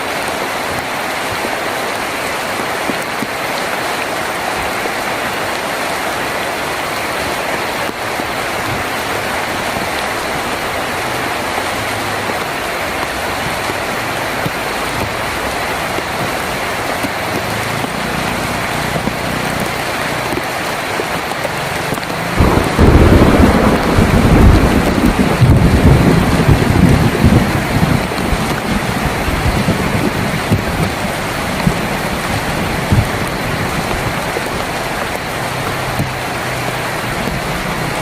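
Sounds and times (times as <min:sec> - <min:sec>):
heavy rain on a tin roof: 0:00.0 - 0:38.0
low rumble of thunder: 0:22.4 - 0:34.2.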